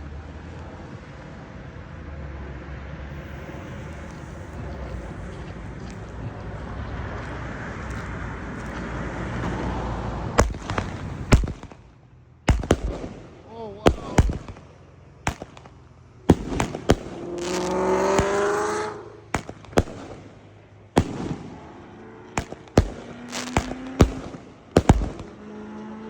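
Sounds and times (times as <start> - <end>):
pitched firework whine: 3.1 - 6.1, 9.5 - 25.8
firework bangs: 10.3 - 25.8.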